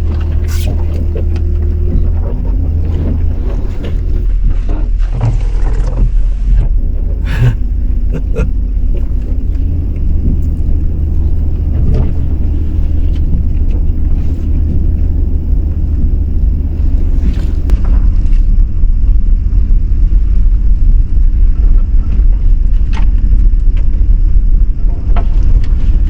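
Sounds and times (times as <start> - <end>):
truck engine and road noise: 0.0 - 5.0, 6.1 - 18.9.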